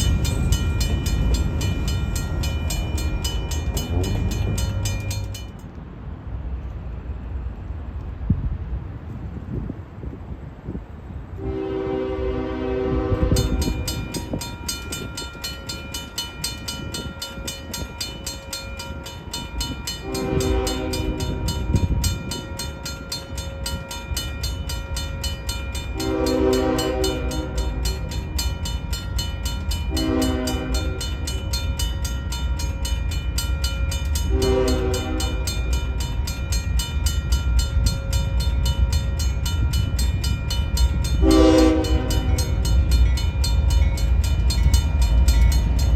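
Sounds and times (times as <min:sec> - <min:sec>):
moving train rumble: 0:00.0 - 0:45.9
locomotive air horn blasts: 0:11.4 - 0:13.8, 0:20.0 - 0:21.5, 0:26.0 - 0:27.9, 0:29.9 - 0:31.3, 0:34.2 - 0:35.6, 0:41.2 - 0:42.6.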